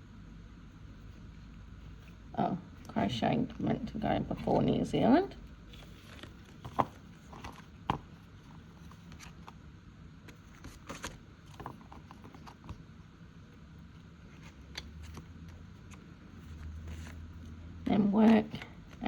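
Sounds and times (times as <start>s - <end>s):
envelopes rustling: 0.8s - 9.5s.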